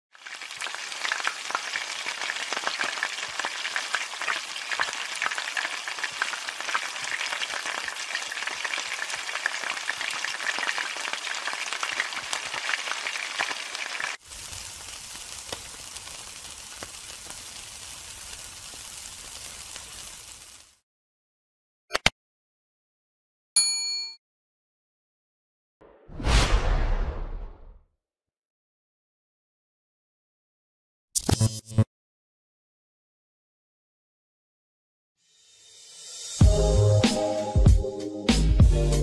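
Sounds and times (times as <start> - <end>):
hot oil sizzling and crackling: 0.1 - 20.8
meat skewers sizzling over coals: 0.1 - 20.8.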